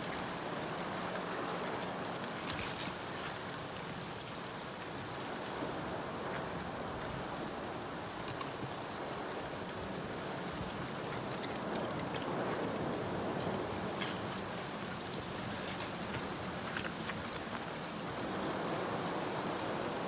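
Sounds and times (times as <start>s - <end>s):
lava flow rushing with glassy clinks: 11.0s - 12.8s.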